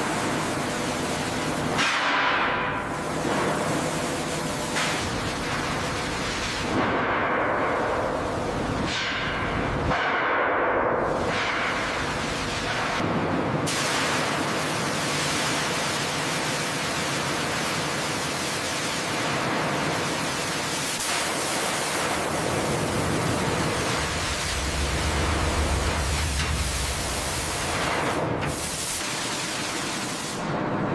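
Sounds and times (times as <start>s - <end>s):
low hum: 23.1s - 28.5s
rushing hiss: 23.3s - 30.4s.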